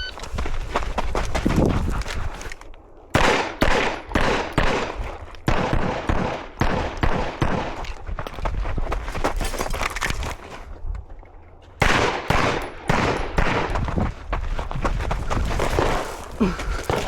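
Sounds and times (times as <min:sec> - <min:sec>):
gunshots with short echo: 0:03.1 - 0:07.8, 0:11.8 - 0:13.8.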